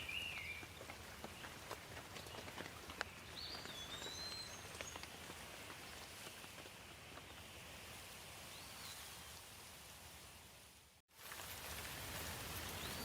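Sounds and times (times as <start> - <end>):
light rain falling: 0.0 - 13.0.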